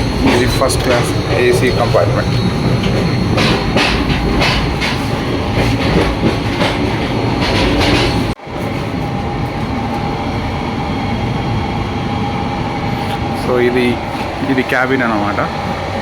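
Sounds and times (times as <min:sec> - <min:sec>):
train wheels clattering: 0:00.0 - 0:11.0.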